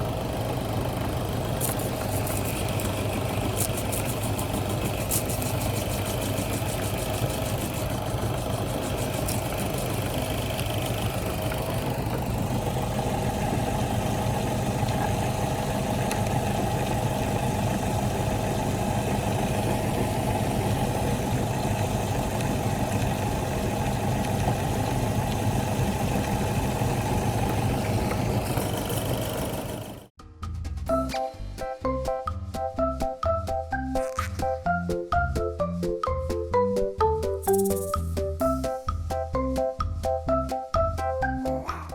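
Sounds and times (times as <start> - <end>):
electric meat grinder running: 0.0 - 30.1.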